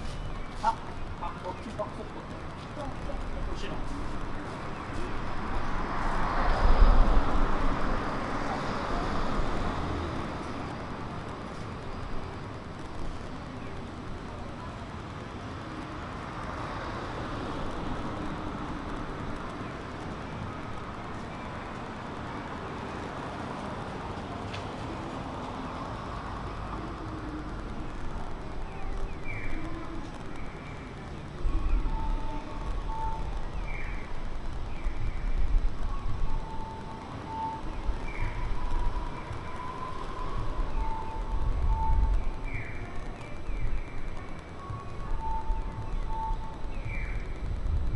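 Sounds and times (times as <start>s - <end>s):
traffic noise: 0.0s - 47.9s
car passing by: 3.9s - 11.7s.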